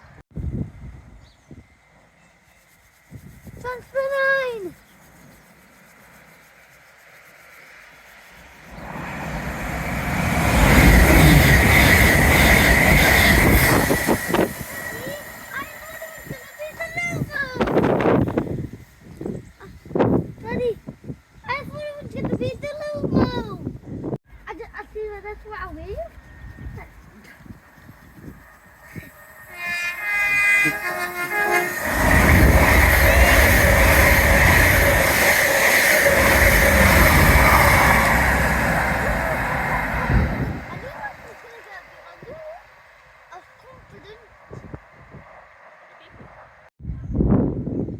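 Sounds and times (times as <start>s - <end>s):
train wheels rumbling on rails: 7.5s - 18.8s, 24.5s - 46.7s
high-pitched whine: 8.4s - 18.3s, 26.2s - 41.6s
train horn: 8.8s - 16.6s, 28.1s - 40.9s.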